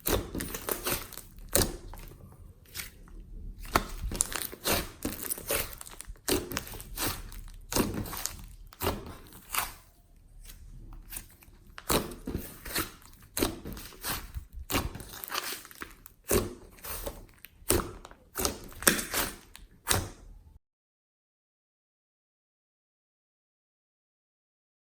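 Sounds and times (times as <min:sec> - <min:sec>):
slime squeezed with sticky pops: 0:03.6 - 0:10.0.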